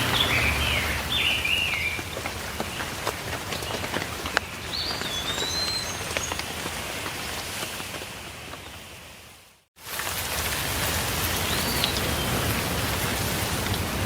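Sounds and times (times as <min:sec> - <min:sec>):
songbird singing: 0:00.0 - 0:06.7
steady rain: 0:00.0 - 0:14.0.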